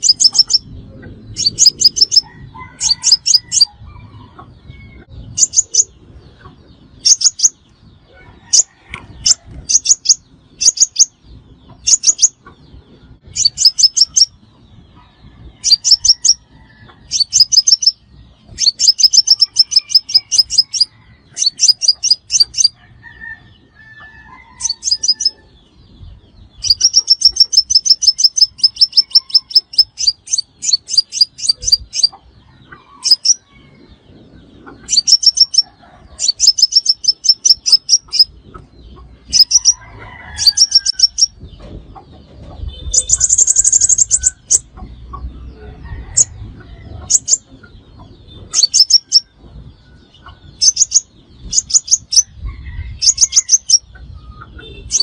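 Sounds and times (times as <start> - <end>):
bird trilling high chips: 0.0 - 0.7, 11.9 - 12.4, 17.1 - 22.8, 26.6 - 32.2, 34.9 - 38.3, 42.8 - 44.7.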